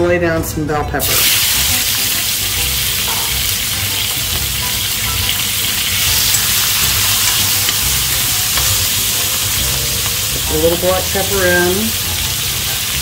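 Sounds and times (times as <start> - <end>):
peppers sizzling in oil: 1.0 - 13.0
spoon stirring in pan: 2.9 - 13.0.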